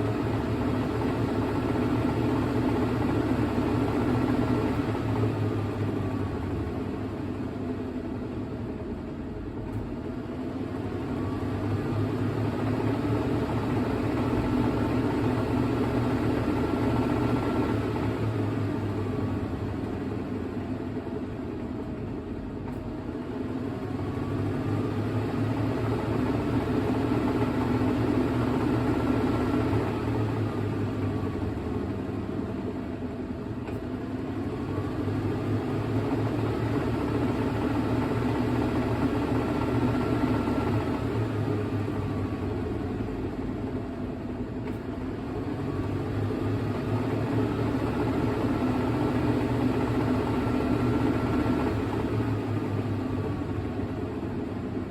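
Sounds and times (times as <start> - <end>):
washing machine spinning: 23.0 - 54.9.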